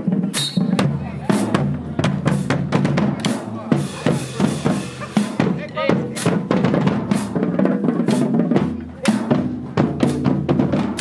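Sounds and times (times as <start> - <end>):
bass drums: 0.0 - 11.0.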